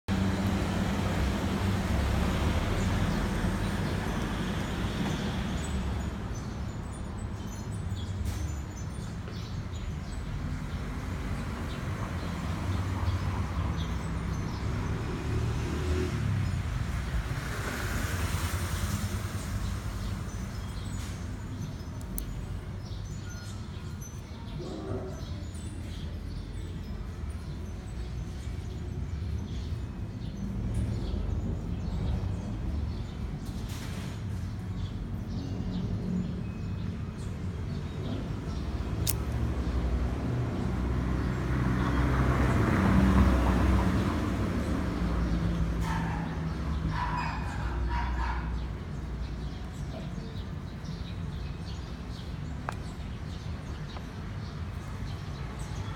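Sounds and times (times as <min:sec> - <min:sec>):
motor vehicle passing by: 0:00.1 - 0:06.8, 0:10.6 - 0:21.3, 0:37.9 - 0:55.9
sharp click: 0:39.0 - 0:39.4.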